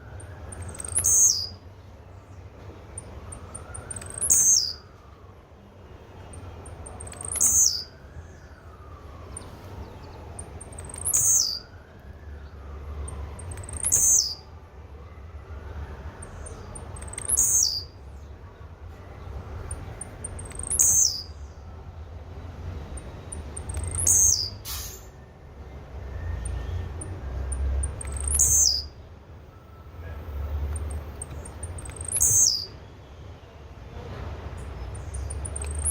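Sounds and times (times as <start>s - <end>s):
bird high sharp calls: 0.1s - 1.6s, 3.0s - 4.9s, 6.3s - 8.5s, 9.4s - 11.7s, 13.1s - 14.5s, 16.2s - 18.0s, 19.7s - 21.4s, 23.0s - 25.1s, 26.4s - 29.0s, 30.7s - 32.8s, 34.6s - 35.9s
faint high ticks: 16.8s - 17.6s, 19.7s - 21.1s, 30.7s - 32.5s.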